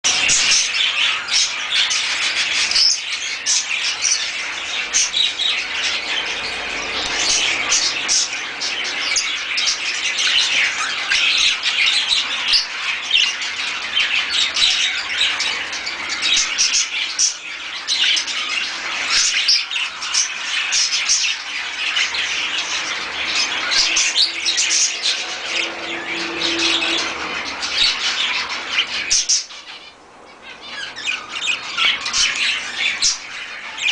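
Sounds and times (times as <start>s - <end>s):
birds chirping and squawking: 0.0s - 33.9s.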